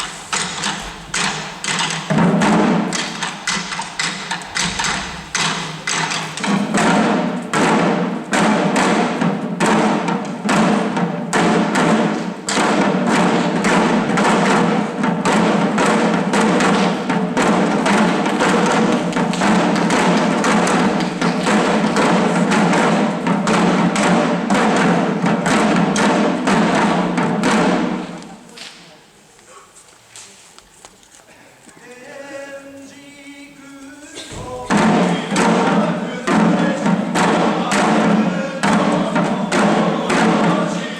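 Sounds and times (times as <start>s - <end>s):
fast taiko drumming: 0.0s - 28.4s, 34.0s - 40.9s
voices singing: 31.7s - 40.9s.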